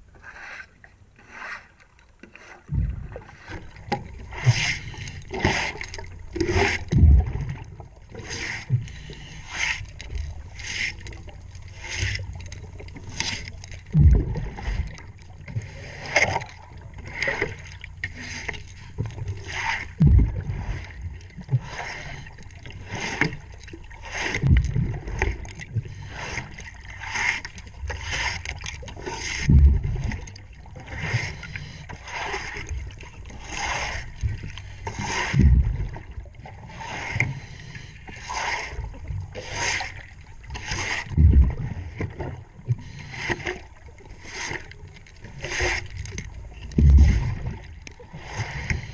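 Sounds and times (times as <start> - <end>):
scrubbing propeller underwater: 0.0 - 48.9
exhaled bubbles rumbling: 2.6 - 48.9
diver breathing underwater: 17.0 - 25.2, 46.8 - 48.9.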